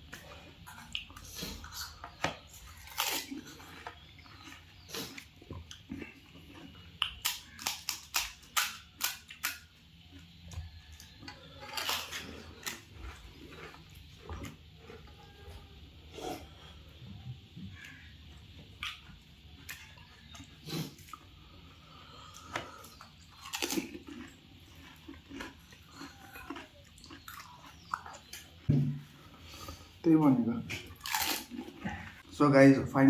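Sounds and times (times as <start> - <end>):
wet chewing: 0.0 - 15.6, 18.7 - 30.0, 30.7 - 32.3
crisp food crunching: 0.2 - 15.5, 22.1 - 28.7, 30.7 - 32.4.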